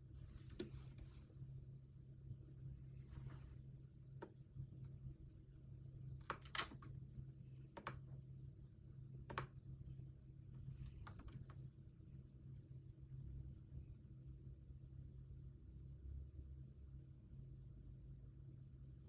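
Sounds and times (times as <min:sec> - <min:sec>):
computer keyboard keystrokes: 0:10.9 - 0:11.5.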